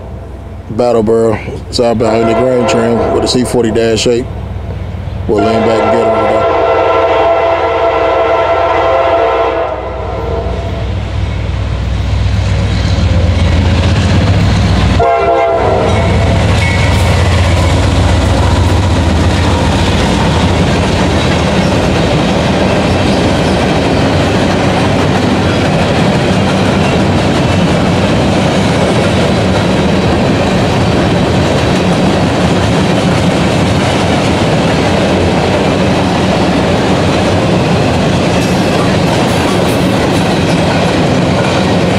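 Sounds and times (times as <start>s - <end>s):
diesel locomotive engine rumble: 0.0s - 41.9s
locomotive air horn: 2.0s - 4.1s, 5.3s - 10.9s, 15.0s - 17.0s
freight cars rolling clatter: 15.9s - 41.9s.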